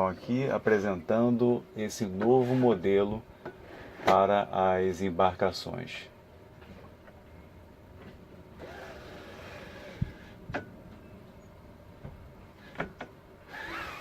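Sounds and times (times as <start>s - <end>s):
blind sliding rasp: 2.3s - 2.9s, 13.5s - 14.0s.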